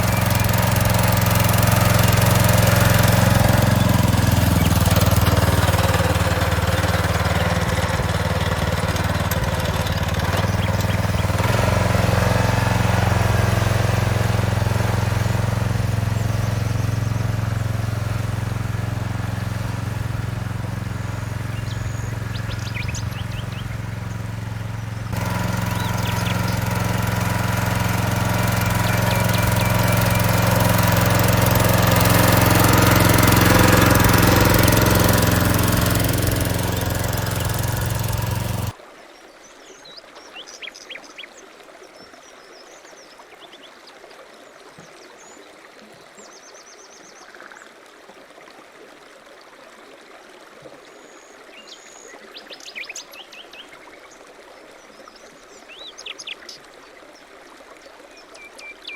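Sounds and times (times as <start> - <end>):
birds chirping: 0.0 - 38.7
rototiller engine running: 0.0 - 38.8.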